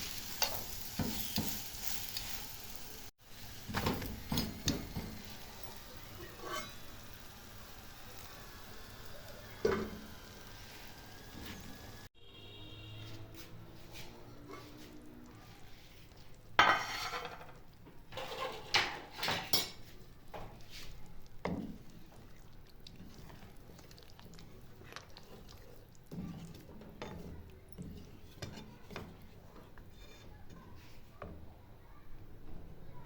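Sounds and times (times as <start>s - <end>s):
metal cookware clanging: 0.0s - 2.4s, 3.6s - 8.4s, 9.4s - 10.4s, 16.6s - 20.6s
metal utensils clinking: 3.7s - 7.3s, 16.6s - 19.9s.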